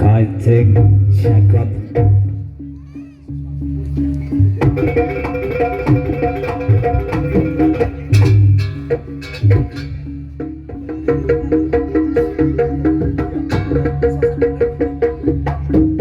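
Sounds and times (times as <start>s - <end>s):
traditional percussion music: 0.0s - 16.0s
rapid drum strokes: 4.5s - 16.0s.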